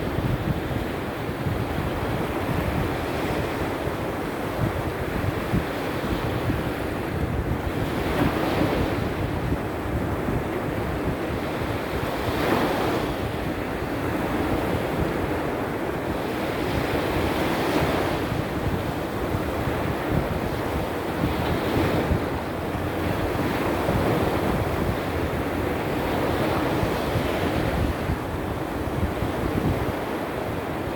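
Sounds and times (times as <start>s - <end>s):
wind buffeting microphone: 0.0s - 30.9s
sea surf breaking: 7.6s - 30.9s.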